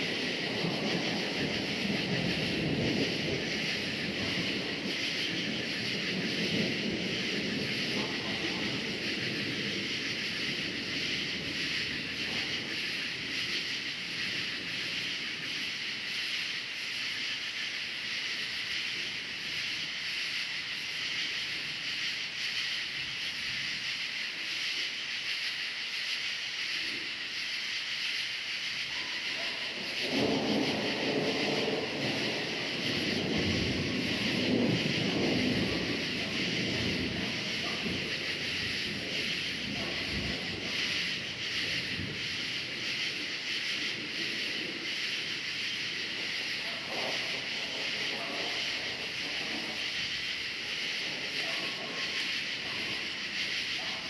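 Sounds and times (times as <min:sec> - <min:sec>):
thunder rumbling: 0:00.0 - 0:15.9, 0:29.3 - 0:54.0
crickets chirping: 0:00.0 - 0:54.0.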